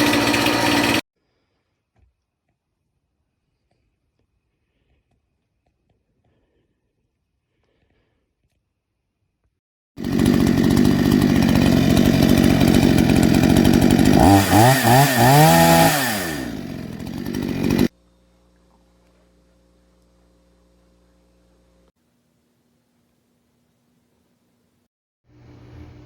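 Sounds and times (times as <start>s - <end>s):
chainsaw engine revving: 0.0s - 1.0s, 10.0s - 17.9s.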